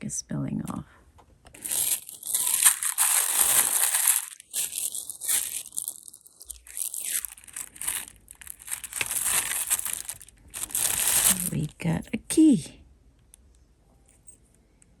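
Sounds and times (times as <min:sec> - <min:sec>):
jewelry rustling and crinkling: 0:01.5 - 0:12.1.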